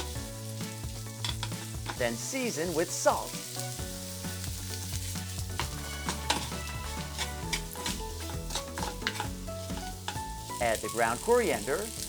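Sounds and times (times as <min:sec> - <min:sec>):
filling sizzling in a frying pan: 0:00.0 - 0:12.0
soft background music: 0:00.0 - 0:12.0
spoon scraping a pan: 0:01.2 - 0:02.1, 0:04.7 - 0:10.6.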